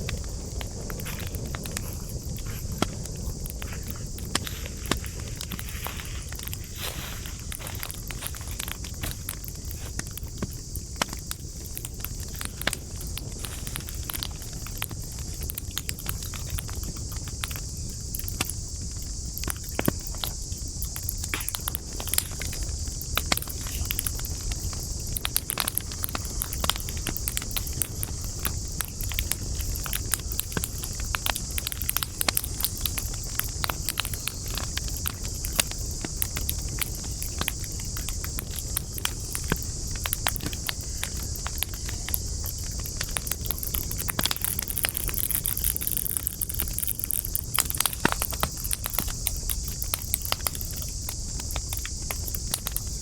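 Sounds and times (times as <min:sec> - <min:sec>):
campfire crackling: 0:00.0 - 0:53.0.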